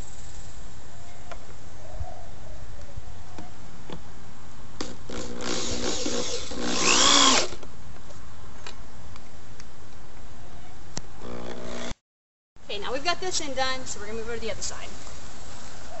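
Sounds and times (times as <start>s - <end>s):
power drill driving screw into wood: 4.8s - 7.6s, 11.2s - 12.0s.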